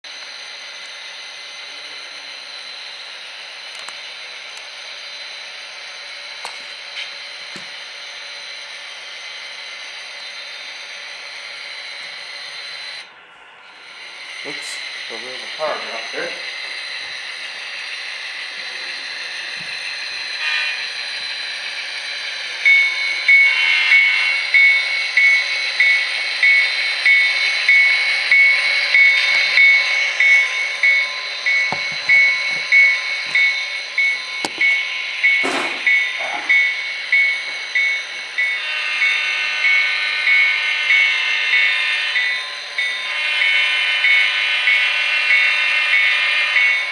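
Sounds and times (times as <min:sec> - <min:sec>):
model train diesel engine sound: 0:00.0 - 0:46.9
locomotive horn: 0:20.4 - 0:20.9
locomotive bell ringing: 0:22.6 - 0:46.9.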